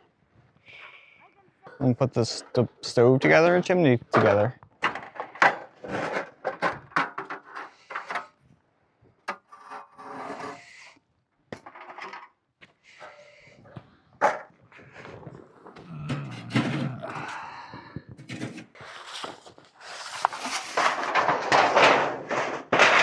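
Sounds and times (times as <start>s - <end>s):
scraping and rubbing: 4.8s - 8.3s, 9.3s - 10.9s, 14.2s - 23.0s.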